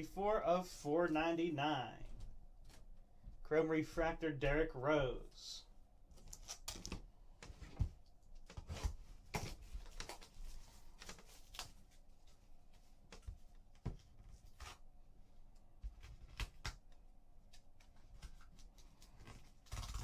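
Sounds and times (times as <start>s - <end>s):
cards and plastic holders handled: 6.1s - 14.8s, 15.6s - 20.0s.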